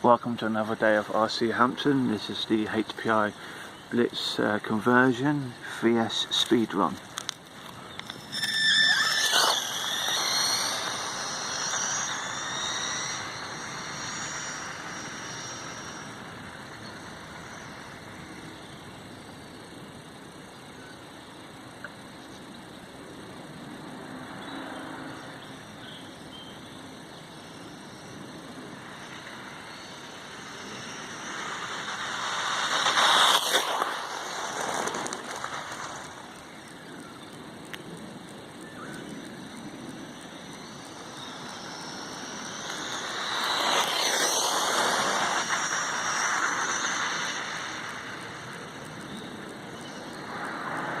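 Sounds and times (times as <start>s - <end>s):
tyre noise: 6.9s - 16.0s
rc truck electric motor whine: 7.1s - 19.6s, 24.4s - 37.3s, 38.8s - 51.0s.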